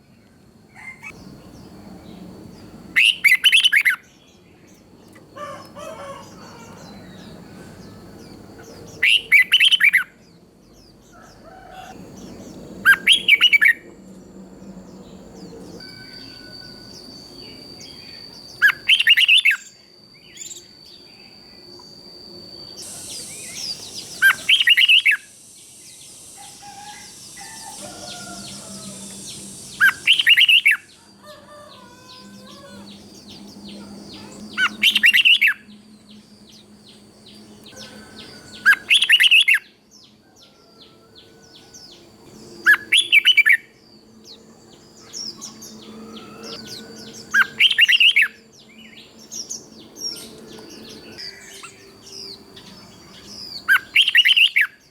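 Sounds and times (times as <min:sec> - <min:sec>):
bird singing song phrases: 0:00.0 - 0:54.9
soft bird chirps: 0:10.7 - 0:39.6
faint steady high tone: 0:12.0 - 0:54.9.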